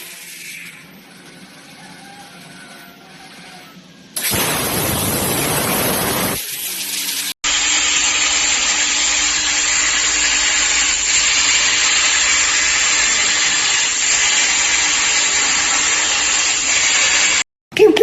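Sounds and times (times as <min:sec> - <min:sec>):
plasma torch cutting metal: 0:04.2 - 0:17.4.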